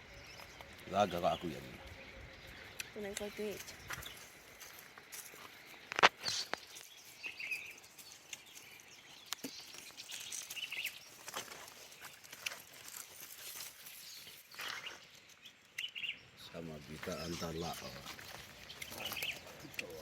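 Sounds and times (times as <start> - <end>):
outdoor bush ambience: 0.0 - 20.0
rustling: 3.4 - 15.4.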